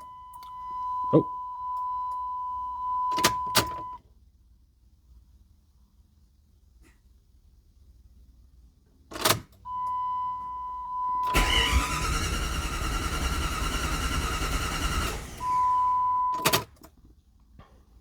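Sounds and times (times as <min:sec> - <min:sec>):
car engine cranking on starter: 0:11.3 - 0:16.7.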